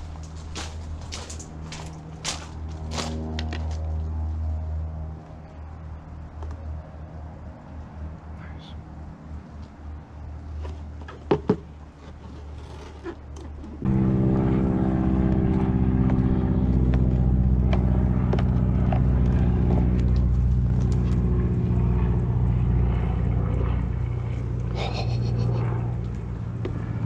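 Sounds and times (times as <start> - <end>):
motor running steadily: 9.8 - 27.0.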